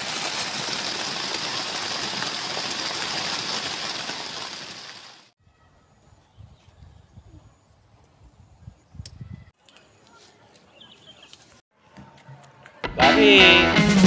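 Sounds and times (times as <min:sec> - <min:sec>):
heavy rain on a tent: 0:00.0 - 0:05.3.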